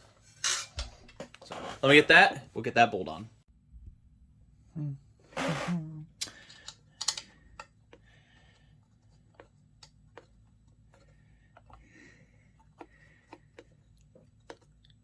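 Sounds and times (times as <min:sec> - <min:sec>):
metallic clicks of hand tools: 0:06.2 - 0:07.7.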